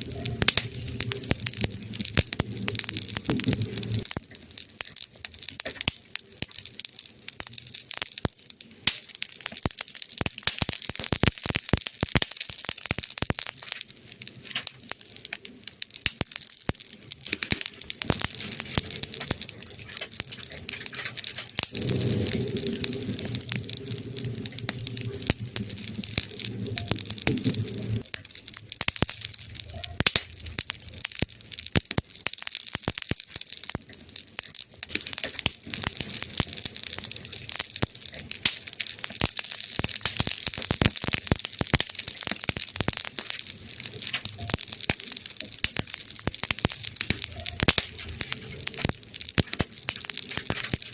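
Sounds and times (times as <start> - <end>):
burning wood crackling and popping: 0.0 - 50.9
low rumble: 18.0 - 28.8.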